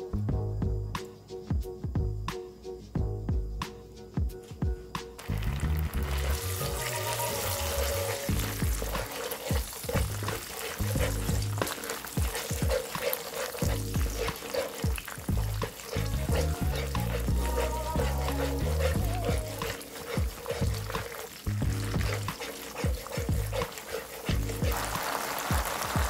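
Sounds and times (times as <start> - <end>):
bean paste sizzling in oil: 5.2 - 26.0
spatula stirring in pan: 6.0 - 26.0.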